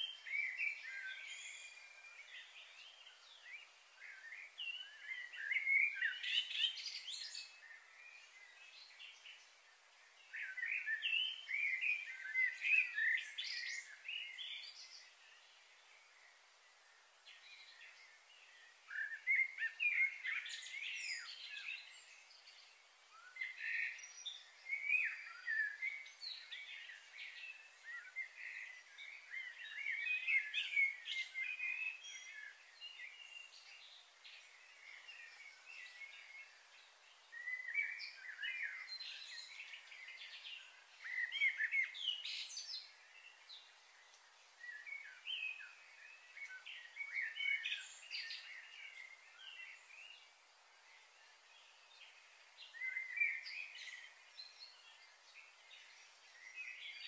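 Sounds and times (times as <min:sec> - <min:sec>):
faint steady hiss: 0:00.0 - 0:57.0
small birds chirping: 0:00.0 - 0:57.0.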